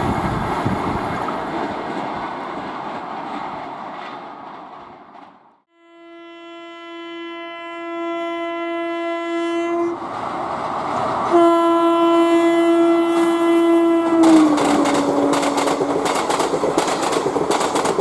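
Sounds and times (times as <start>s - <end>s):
train horn blasts: 5.7s - 10.0s, 11.2s - 16.2s
train running rumble: 10.0s - 18.0s
train wheels clattering: 14.0s - 18.0s.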